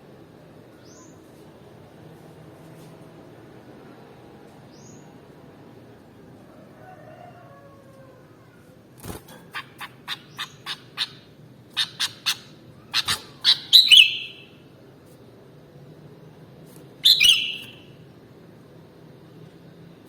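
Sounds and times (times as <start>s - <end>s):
bird calling sharp notes: 11.8s - 14.6s, 17.0s - 17.9s.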